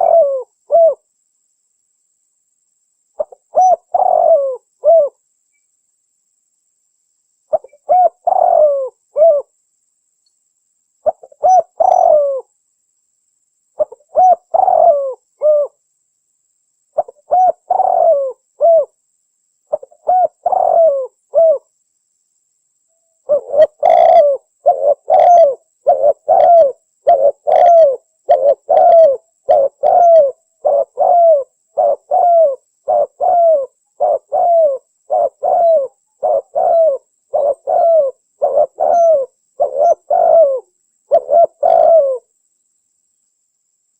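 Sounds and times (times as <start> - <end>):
dove cooing: 0.0 - 1.0, 3.2 - 5.2, 7.5 - 9.5, 11.0 - 12.5, 13.8 - 15.8, 17.0 - 19.0, 19.7 - 21.7, 23.2 - 42.3.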